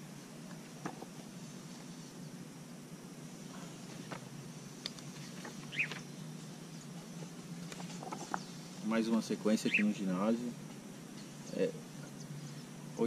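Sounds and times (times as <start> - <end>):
steady low hum: 0.0 - 13.0
bird chirps: 5.2 - 7.1, 9.5 - 10.2.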